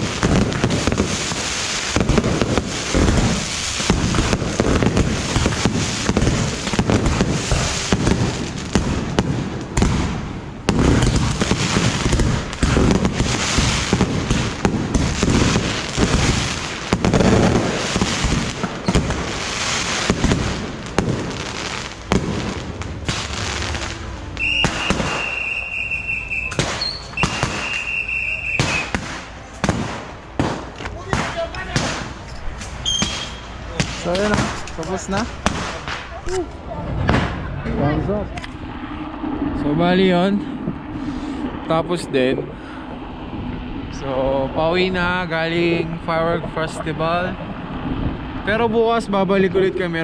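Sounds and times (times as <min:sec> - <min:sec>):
fireworks cracking and banging: 0:00.0 - 0:39.6
steady high tone: 0:23.3 - 0:28.6.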